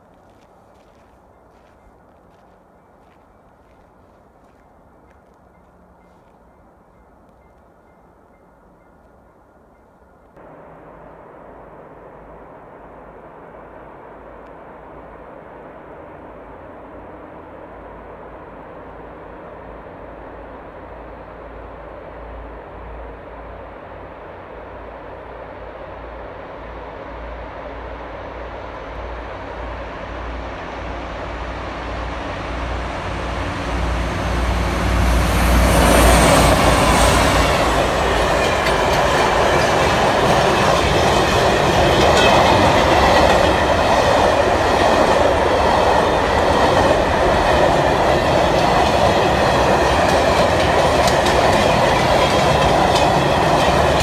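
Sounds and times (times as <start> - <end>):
locomotive low rumble: 0.0 - 54.0
wheels clacking over rail joints: 33.4 - 54.0.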